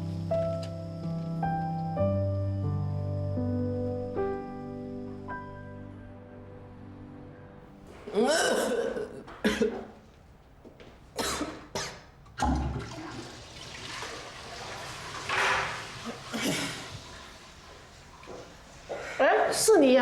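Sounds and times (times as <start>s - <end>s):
woman retching: 7.9s - 10.0s, 11.2s - 12.6s, 16.0s - 16.9s
toilet flushing: 12.3s - 20.0s.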